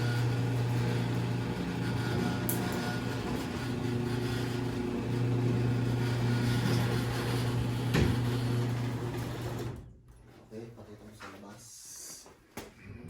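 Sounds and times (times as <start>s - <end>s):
garage door motor humming: 0.0s - 10.1s.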